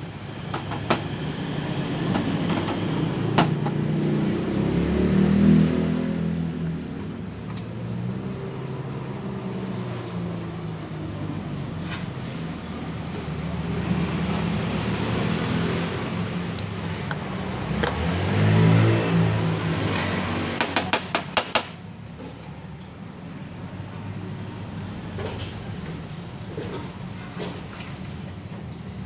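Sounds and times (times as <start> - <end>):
scooter engine idling and revving: 0.0 - 22.0.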